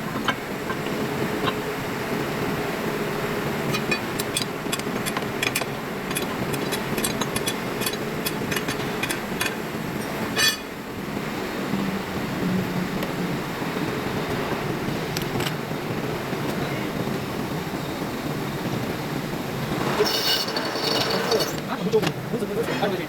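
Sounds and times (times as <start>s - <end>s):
machine running steadily: 0.0s - 23.0s
small metallic clicks: 3.7s - 10.5s
sharp ringing metal clank: 5.4s - 10.8s.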